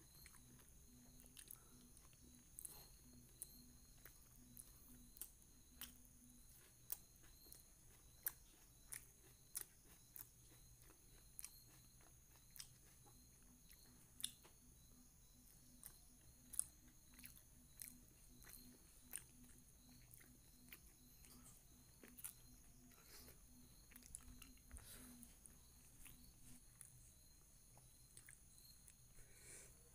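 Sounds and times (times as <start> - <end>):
low background hum: 0.0 - 29.9
wet chewing mouth clicks: 27.7 - 29.0.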